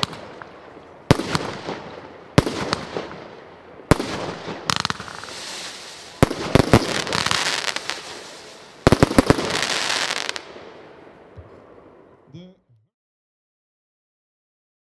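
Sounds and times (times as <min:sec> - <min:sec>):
firework shots: 0:00.0 - 0:03.3, 0:03.9 - 0:10.6
firework crackling: 0:00.0 - 0:10.7.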